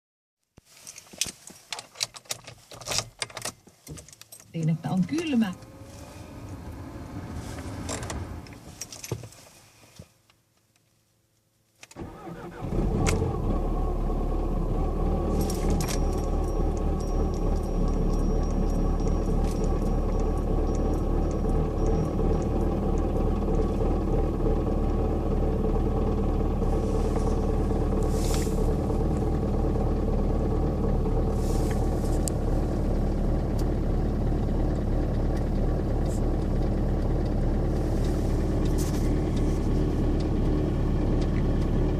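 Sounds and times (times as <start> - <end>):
diesel engine idling: 5.0 - 8.5, 12.1 - 41.9
low hum: 13.2 - 41.9.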